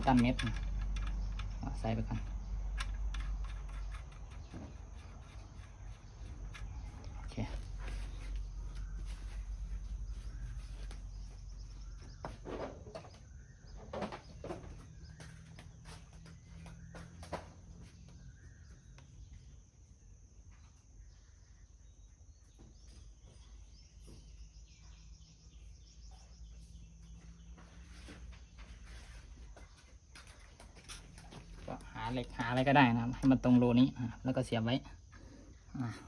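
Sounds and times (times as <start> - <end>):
hand tools and metal parts clicking: 0.0 - 8.9
faint birds: 0.0 - 36.0
insects: 0.0 - 36.0.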